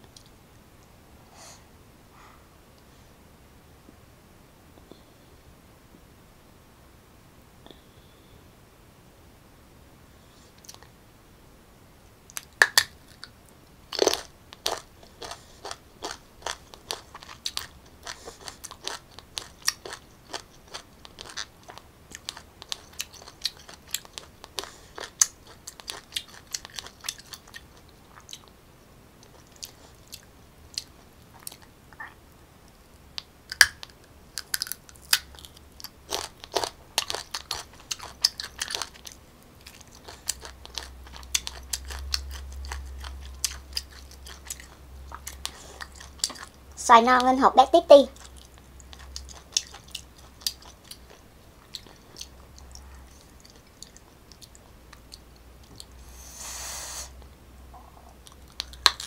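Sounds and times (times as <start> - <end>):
crunchy chewing of mango: 13.9 - 28.6, 29.2 - 31.8, 33.5 - 46.6, 48.2 - 56.0.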